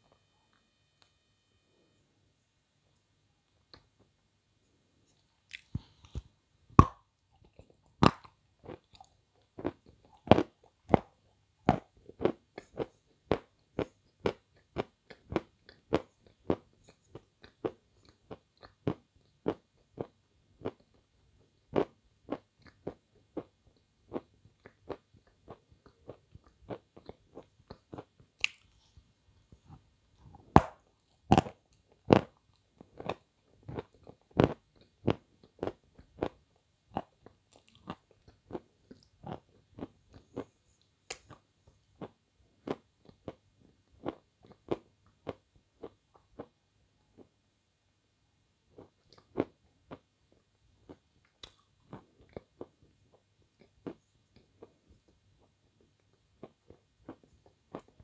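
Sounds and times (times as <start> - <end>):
biting and chewing ice cream: 30.5 - 46.6, 48.8 - 58.0.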